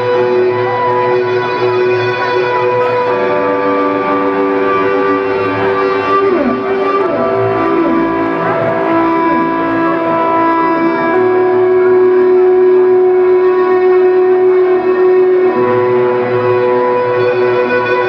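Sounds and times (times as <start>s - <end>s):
band playing droning notes: 0.0s - 18.0s.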